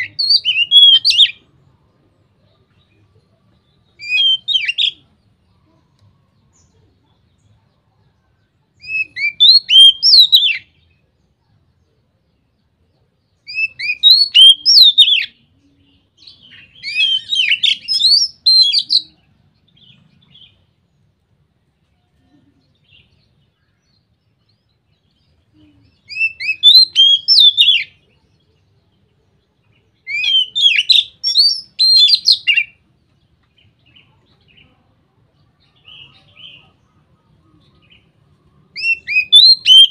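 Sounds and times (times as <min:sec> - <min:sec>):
songbird singing whistled phrases: 0:00.0 - 0:01.5, 0:02.7 - 0:05.2, 0:08.8 - 0:11.0, 0:13.3 - 0:19.8, 0:22.9 - 0:28.6, 0:29.6 - 0:32.8, 0:37.5 - 0:39.9.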